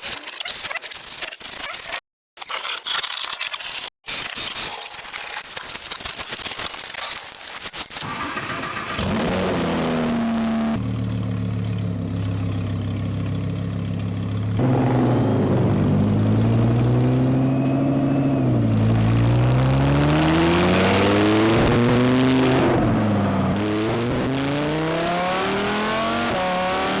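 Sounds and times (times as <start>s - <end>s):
car engine idling and revving: 8.0s - 27.0s.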